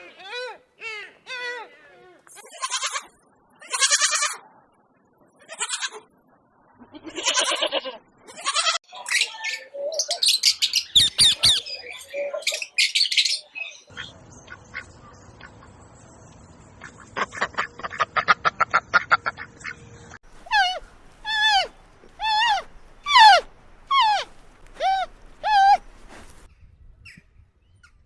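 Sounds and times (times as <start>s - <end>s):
farm animal bleating: 2.0s - 4.4s, 5.3s - 6.1s, 6.7s - 8.8s
birds squawking: 20.3s - 26.5s.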